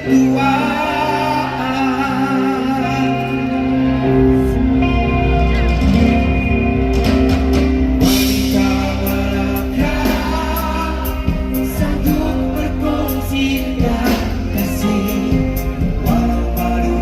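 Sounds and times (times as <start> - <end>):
person singing: 0.0 - 5.0, 8.1 - 17.0
electric guitar: 0.0 - 17.0
drum kit: 4.7 - 17.0.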